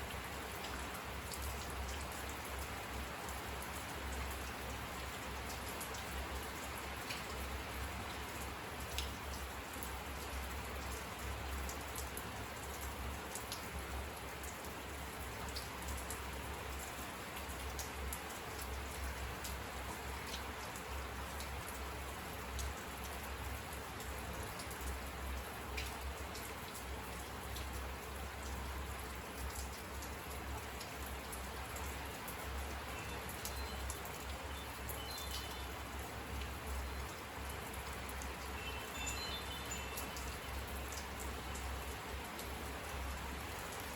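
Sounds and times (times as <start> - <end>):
raindrops ticking on surface: 0.0 - 43.9
steady rain: 0.0 - 43.9.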